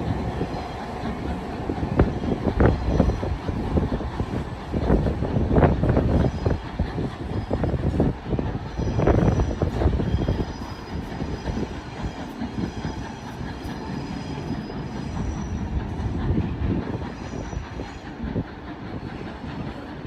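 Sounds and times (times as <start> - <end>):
faint high wheel squeal: 8.7 - 15.8.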